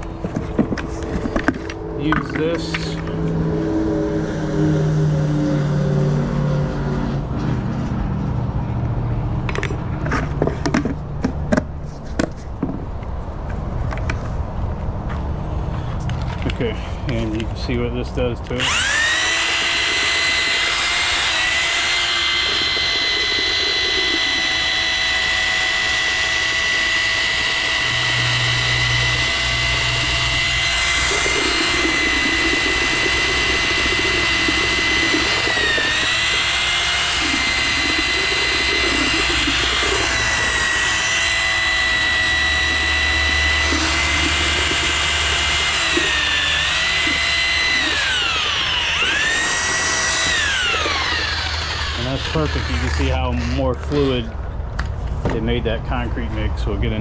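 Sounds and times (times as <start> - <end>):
electric drill mixing concrete: 0.0 - 6.1, 18.4 - 54.4.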